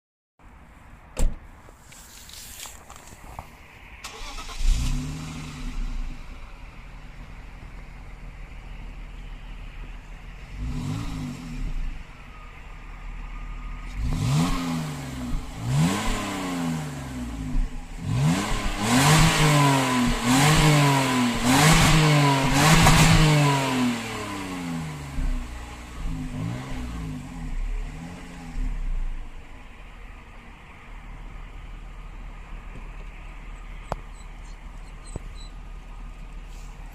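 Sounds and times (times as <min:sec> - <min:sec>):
car engine revving: 0:04.0 - 0:29.8.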